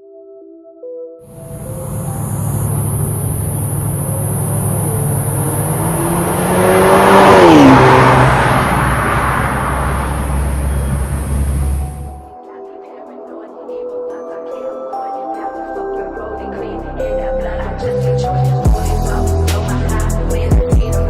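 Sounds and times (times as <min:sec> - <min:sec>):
car engine through exhaust: 0:01.3 - 0:12.2.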